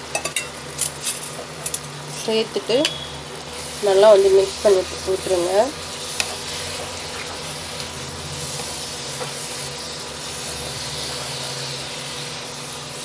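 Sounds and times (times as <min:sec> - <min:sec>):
food sizzling in a pan: 0:00.0 - 0:13.0
spatula stirring: 0:03.6 - 0:13.0.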